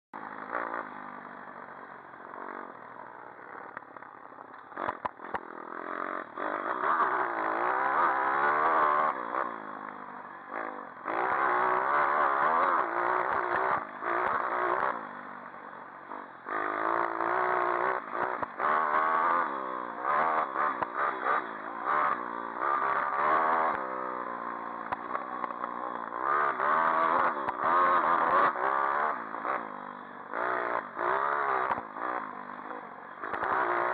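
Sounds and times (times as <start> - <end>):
pit bike engine revving: 0.2 - 33.9
sharp clicks: 3.7 - 5.5.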